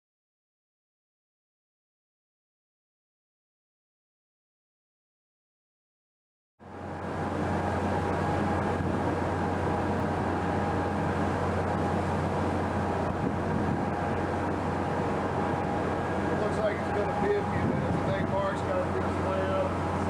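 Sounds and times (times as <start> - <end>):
ship engine hum: 6.6 - 20.0
wind and water noise: 6.6 - 20.0
steady tones: 7.2 - 20.0.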